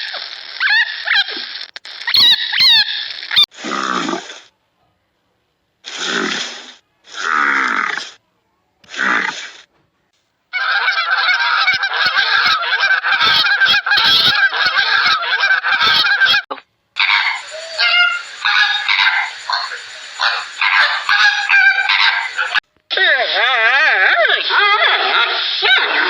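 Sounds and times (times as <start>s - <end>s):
animal calls: 10.6s - 22.6s.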